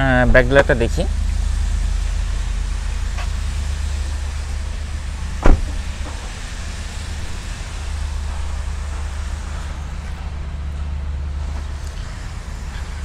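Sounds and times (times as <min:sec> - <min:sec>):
steady low rumble: 0:00.0 - 0:13.0
car door shutting: 0:04.4 - 0:07.5.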